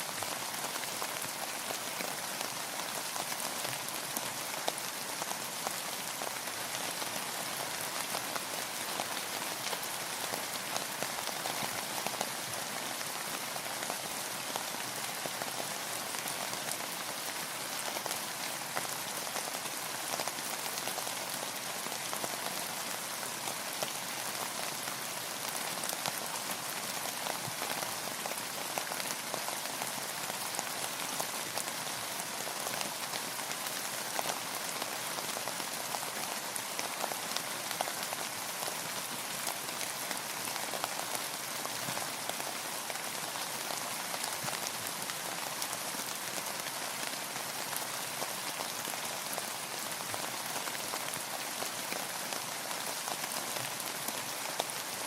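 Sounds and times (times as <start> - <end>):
rain pattering on a surface: 0.0 - 55.0.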